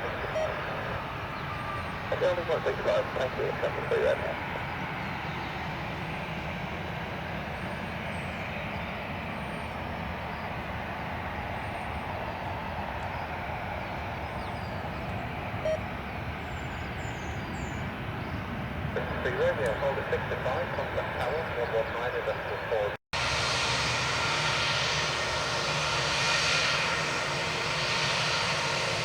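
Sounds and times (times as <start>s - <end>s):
jet engines rushing: 0.0s - 29.0s.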